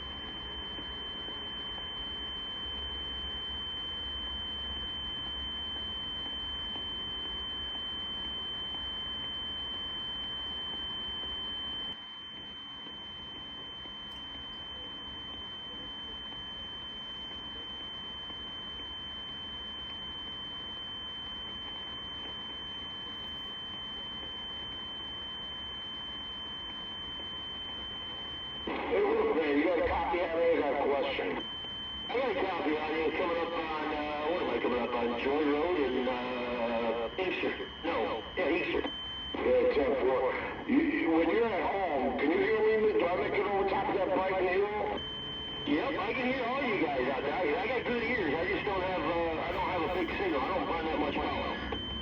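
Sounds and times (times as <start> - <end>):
steady high-pitched radio tone: 0.0 - 52.0
radio hiss: 28.6 - 31.4, 32.1 - 45.0, 45.6 - 51.8.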